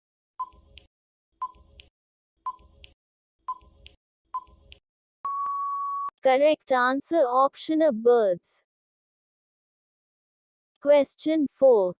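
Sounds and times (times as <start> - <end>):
short electronic beep: 5.2 - 6.1.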